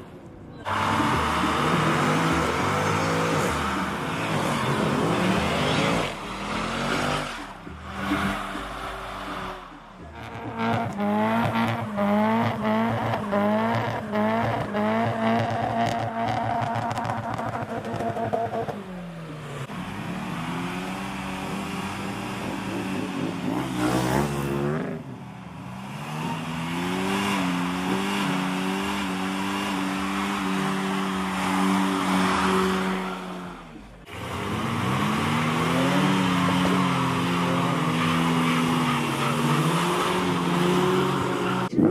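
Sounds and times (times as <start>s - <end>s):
car engines revving: 0.0s - 41.9s
tyres squealing: 36.6s - 41.9s.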